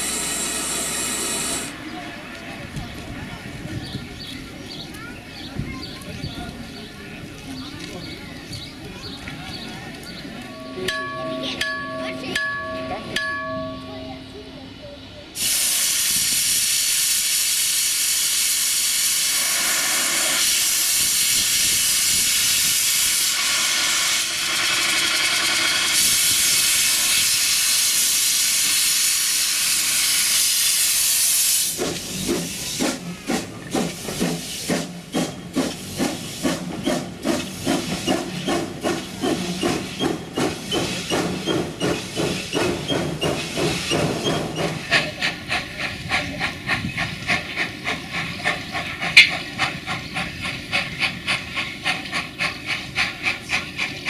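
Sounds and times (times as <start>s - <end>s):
steam hissing: 0.0s - 1.8s, 15.4s - 54.0s
steam locomotive chuffing: 0.0s - 5.2s, 8.0s - 54.0s.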